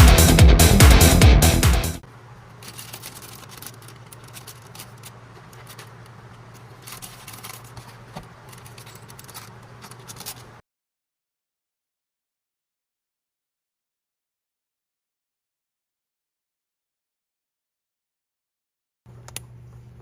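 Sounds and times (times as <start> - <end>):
electronic music: 0.0 - 2.0
plastic parts clicking and rustling: 2.5 - 10.6
steady low hum: 19.1 - 20.0.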